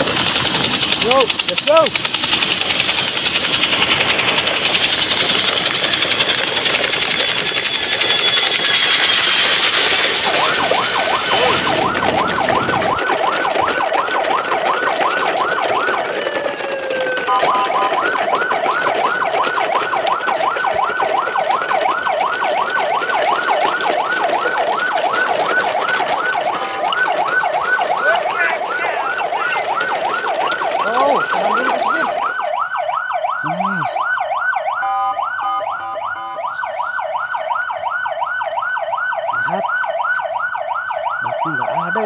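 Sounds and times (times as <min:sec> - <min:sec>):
hiss: 0:00.0 - 0:12.8
electronic siren warbling: 0:00.0 - 0:42.0.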